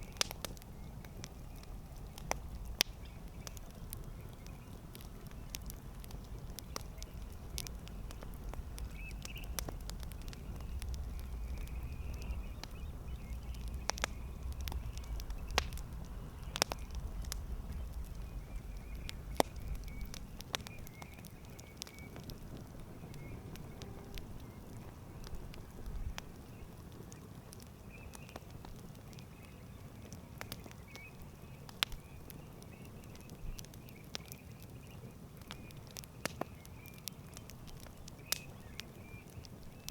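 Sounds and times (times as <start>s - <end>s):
campfire crackling and popping: 0.0s - 39.9s
low rumble: 5.3s - 20.3s.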